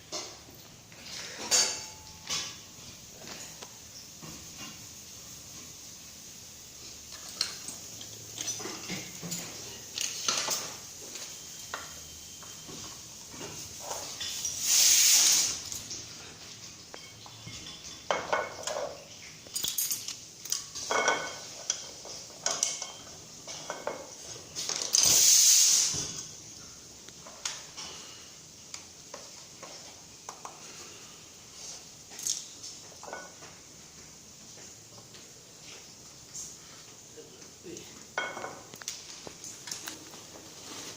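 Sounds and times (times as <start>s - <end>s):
metal tools clinking and tapping: 1.3s - 2.6s, 7.1s - 14.6s, 16.5s - 25.2s, 32.1s - 33.5s
gas hissing bursts: 14.4s - 15.7s, 25.0s - 26.3s.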